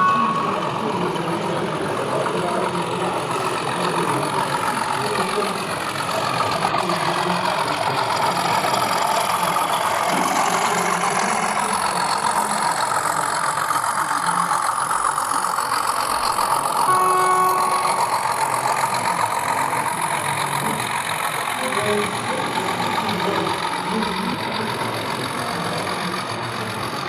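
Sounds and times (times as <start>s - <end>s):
held pitched tone: 0.0s - 7.4s, 16.7s - 20.0s
hall crowd din: 0.0s - 27.0s.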